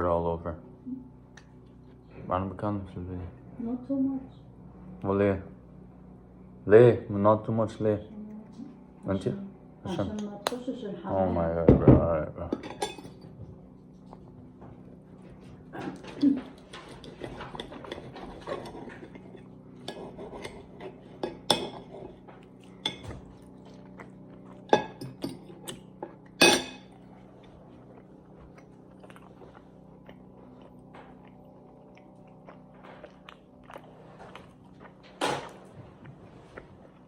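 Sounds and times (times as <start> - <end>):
cutlery clinking on a plate: 12.5 - 13.2, 15.9 - 22.0, 26.1 - 26.9
chewing: 13.8 - 37.0.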